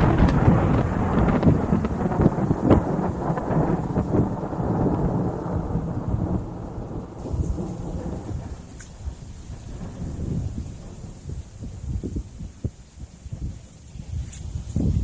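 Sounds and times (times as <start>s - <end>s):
rolling thunder: 0.0s - 15.0s
sharp thunder crackles: 0.0s - 15.0s.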